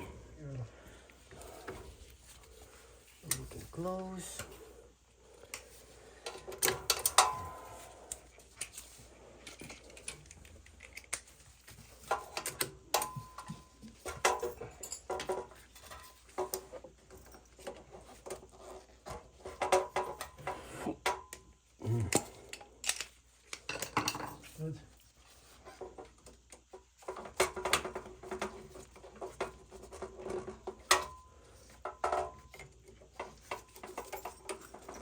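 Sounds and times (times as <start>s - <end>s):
metal tools clinking: 6.2s - 17.8s, 29.9s - 35.0s.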